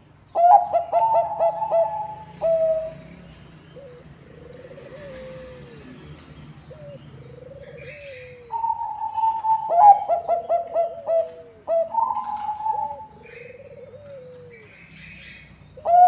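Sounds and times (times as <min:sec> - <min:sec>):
dove cooing: 0:00.3 - 0:16.0.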